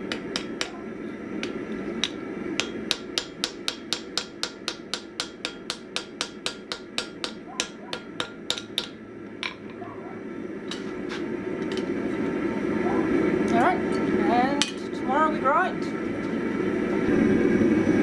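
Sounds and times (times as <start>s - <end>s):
hammer striking axe head on anvil: 0.0s - 0.8s, 1.4s - 9.8s
low rush: 16.7s - 18.0s.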